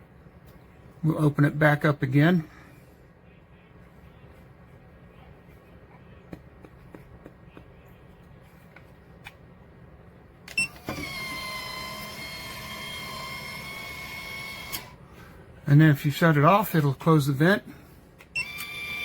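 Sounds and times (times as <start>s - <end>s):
vent motor whining: 10.5s - 15.6s.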